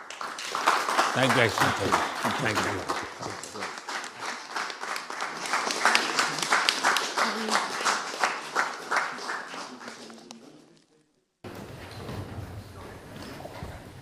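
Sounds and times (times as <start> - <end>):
audience clapping: 0.0 - 10.7.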